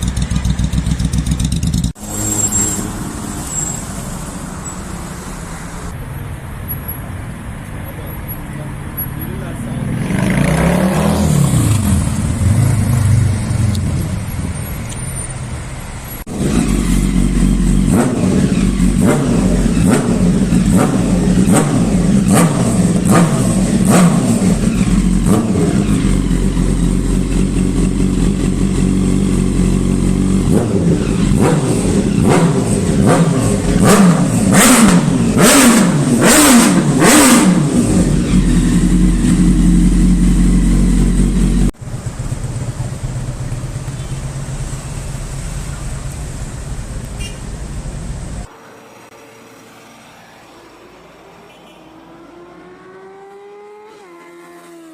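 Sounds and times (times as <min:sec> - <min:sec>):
motorcycle engine revving: 0:00.0 - 0:03.4, 0:09.8 - 0:14.4, 0:16.2 - 0:43.4, 0:51.9 - 0:54.9.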